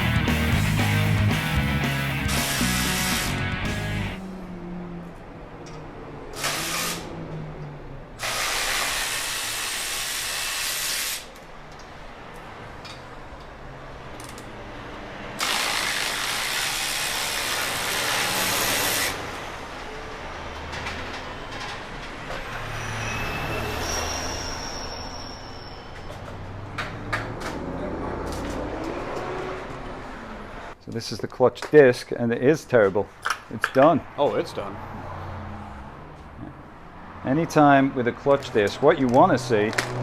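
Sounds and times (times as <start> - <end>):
compressed air hissing: 2.3 - 3.5.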